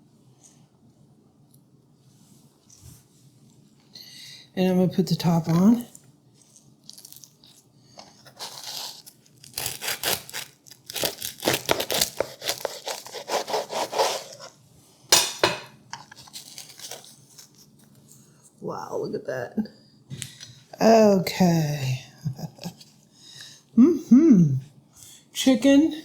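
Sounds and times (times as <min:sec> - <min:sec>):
bread knife sawing through bread: 0:08.3 - 0:14.5.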